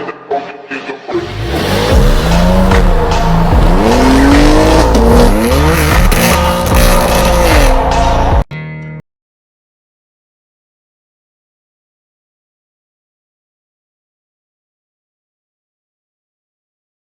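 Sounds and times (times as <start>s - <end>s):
background music: 0.0s - 9.0s
sports car engine revving: 1.1s - 8.3s.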